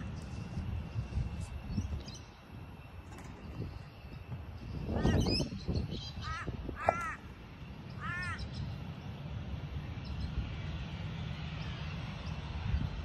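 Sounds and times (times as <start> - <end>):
steady low rumble: 0.0 - 13.0
bird calling: 3.4 - 8.8.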